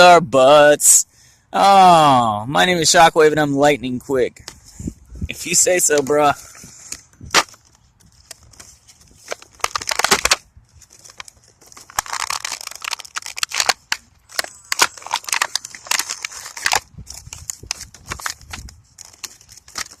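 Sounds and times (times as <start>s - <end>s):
toy packaging crinkling: 5.4s - 20.0s.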